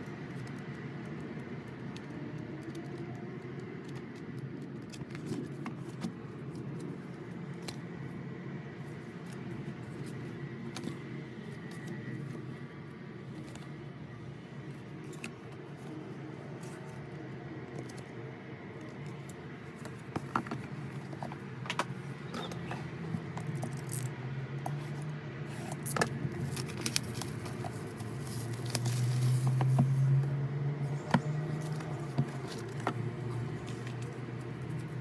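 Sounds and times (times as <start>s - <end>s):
cardboard and plastic rustling: 18.8s - 24.0s, 24.7s - 30.2s, 31.0s - 35.0s.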